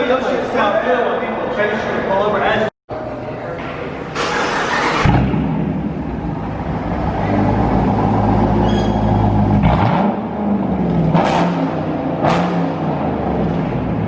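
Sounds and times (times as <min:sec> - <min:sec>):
car engine revving: 0:04.2 - 0:14.0.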